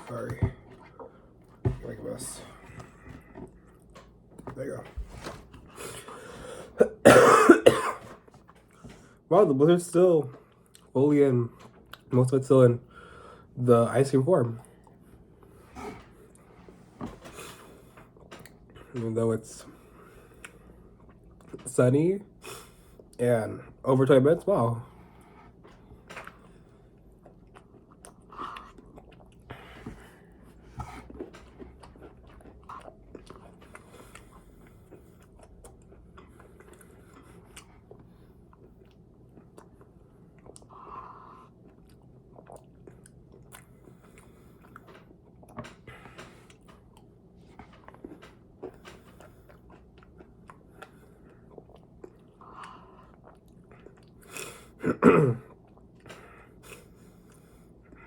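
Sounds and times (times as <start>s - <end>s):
person chewing and biting: 27.2s - 29.5s, 41.4s - 54.6s.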